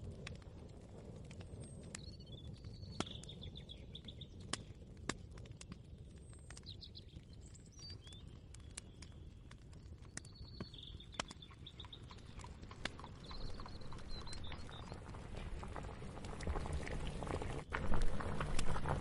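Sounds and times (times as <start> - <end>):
small birds chirping: 1.5 - 16.8
low rumble: 12.9 - 19.0.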